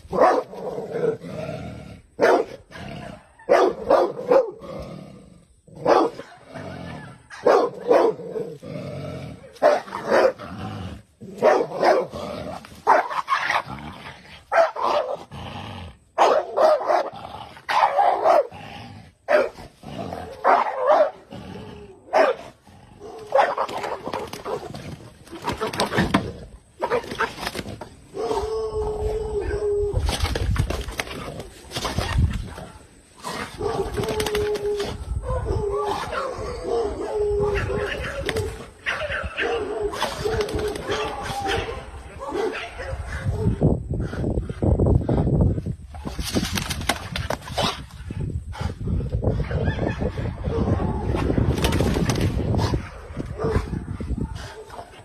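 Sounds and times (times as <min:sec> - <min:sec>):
dog barking: 0:00.1 - 0:00.5, 0:02.2 - 0:02.6, 0:03.4 - 0:04.6, 0:05.8 - 0:08.2, 0:09.6 - 0:10.4, 0:11.4 - 0:12.1, 0:12.8 - 0:13.2, 0:14.5 - 0:15.2, 0:16.2 - 0:17.1, 0:17.7 - 0:18.5, 0:19.3 - 0:19.6, 0:20.4 - 0:21.2, 0:22.1 - 0:24.7, 0:38.8 - 0:43.5.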